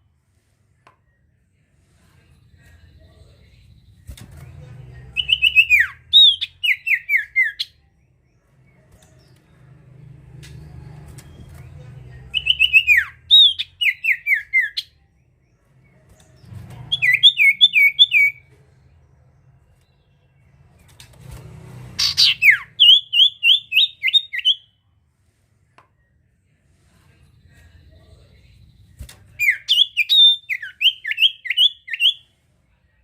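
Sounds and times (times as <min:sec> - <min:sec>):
faint low hum: 0:00.0 - 0:22.0, 0:24.2 - 0:33.0
songbird whistling: 0:05.2 - 0:07.7, 0:12.4 - 0:14.9, 0:16.9 - 0:18.4, 0:22.0 - 0:24.7, 0:29.4 - 0:32.2.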